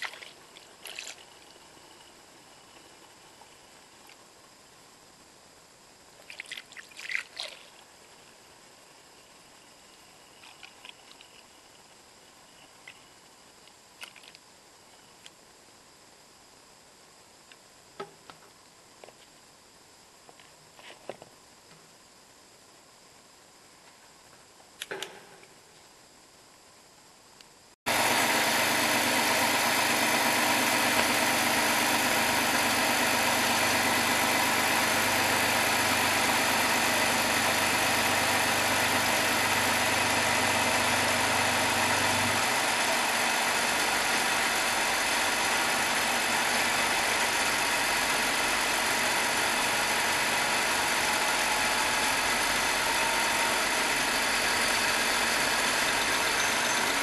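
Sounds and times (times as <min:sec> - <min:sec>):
car engine idling: 0:27.9 - 0:57.0.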